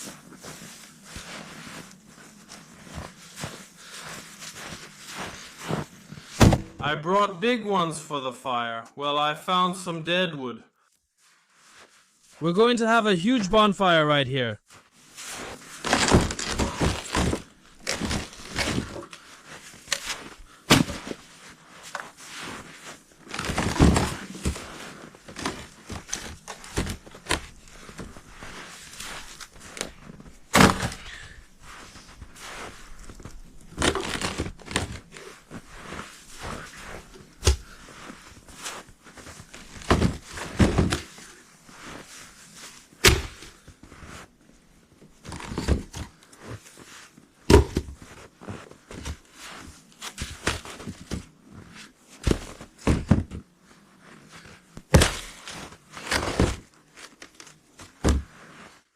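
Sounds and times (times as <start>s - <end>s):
dead wood knocking and crunching: 6.4s - 6.8s, 15.8s - 18.9s, 30.5s - 31.1s, 43.0s - 43.5s, 47.5s - 48.0s, 54.8s - 55.4s.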